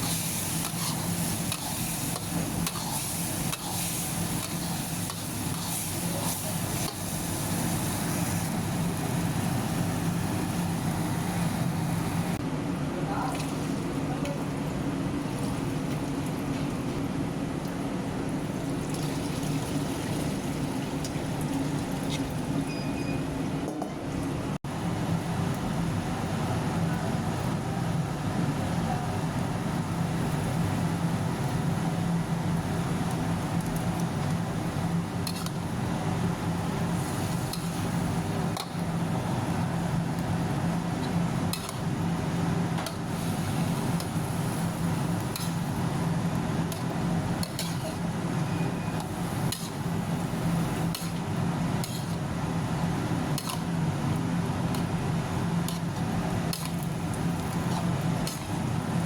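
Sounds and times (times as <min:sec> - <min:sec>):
steady low hum: 0:00.0 - 0:18.7.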